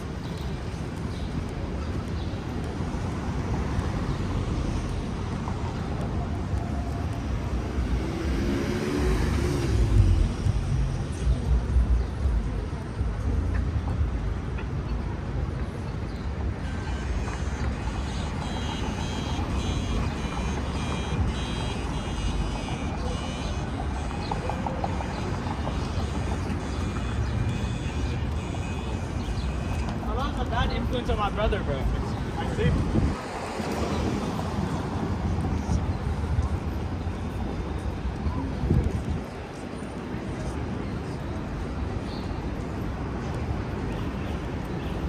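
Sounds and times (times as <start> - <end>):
rumble of passing vehicles: 0.0 - 45.0
electronic alarm beeping: 16.9 - 29.8.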